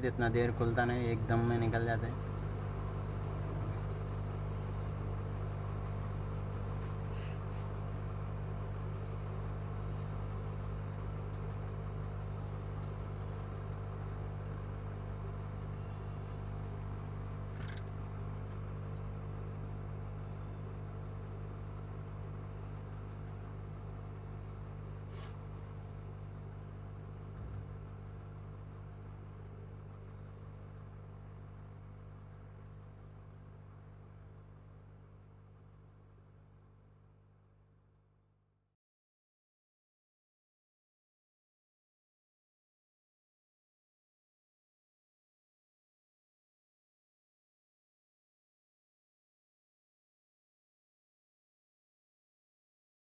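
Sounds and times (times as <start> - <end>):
hot air blower humming: 0.0 - 31.5.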